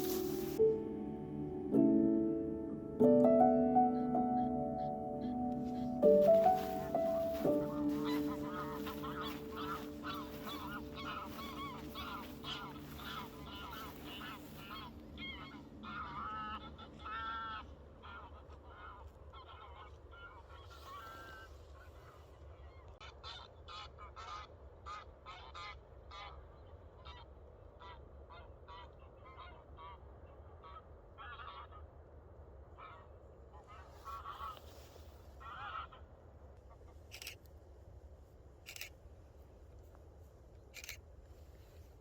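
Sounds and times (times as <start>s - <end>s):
geese honking: 0.0s - 0.6s, 3.9s - 22.3s, 30.6s - 31.8s, 32.8s - 36.1s.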